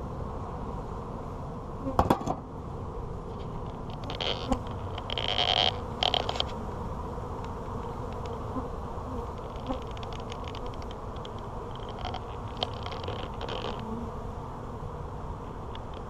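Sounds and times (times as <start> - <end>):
honey bees buzzing: 0.0 - 16.0
light clicks and scratchy sounds: 3.3 - 6.6, 7.4 - 8.5, 9.3 - 13.9.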